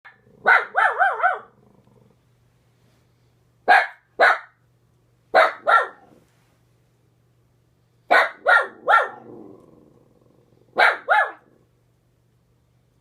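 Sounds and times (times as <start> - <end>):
dog barking: 0.1 - 1.6, 3.7 - 4.6, 5.3 - 6.2, 8.1 - 9.3, 10.8 - 11.5.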